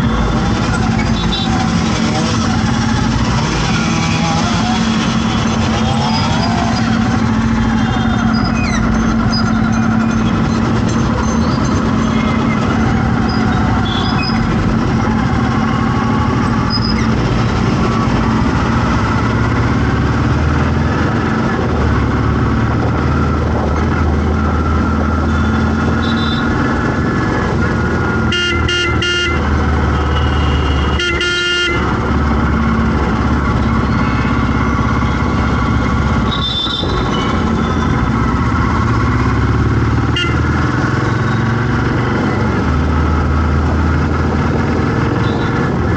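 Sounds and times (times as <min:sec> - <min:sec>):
traffic engines running: 0:00.0 - 0:45.9
vehicle horn toots: 0:01.0 - 0:01.7, 0:13.8 - 0:14.4, 0:25.3 - 0:26.6, 0:28.3 - 0:32.0, 0:33.8 - 0:34.8, 0:36.2 - 0:37.9, 0:40.0 - 0:41.6, 0:45.2 - 0:45.7.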